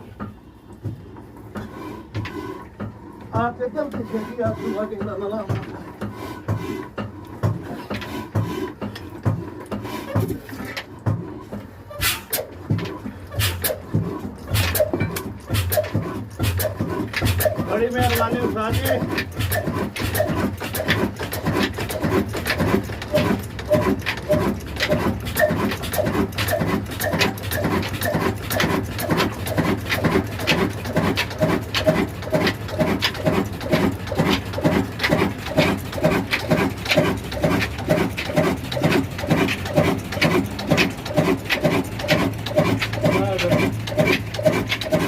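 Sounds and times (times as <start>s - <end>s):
diesel engine running: 10.9s - 45.0s.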